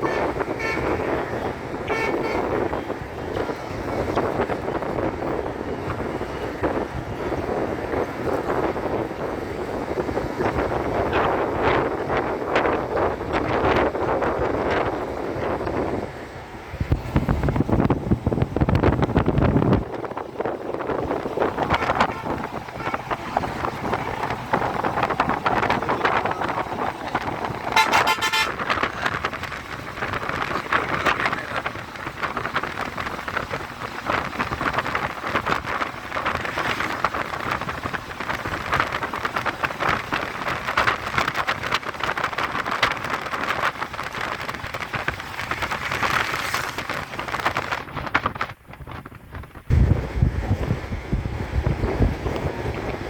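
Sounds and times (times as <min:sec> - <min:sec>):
vehicle horn: 0:00.0 - 0:02.8, 0:27.7 - 0:28.9
road traffic: 0:00.0 - 0:53.0.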